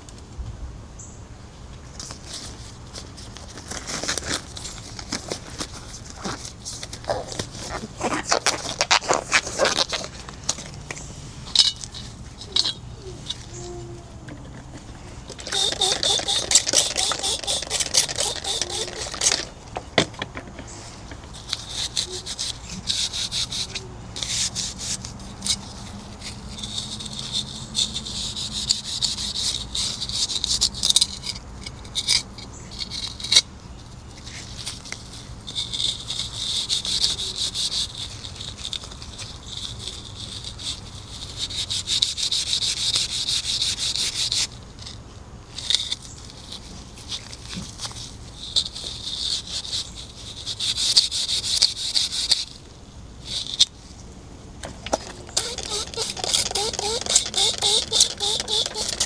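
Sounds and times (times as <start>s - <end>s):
hand scrubbing a hard surface: 13.3s - 19.8s, 55.0s - 59.0s.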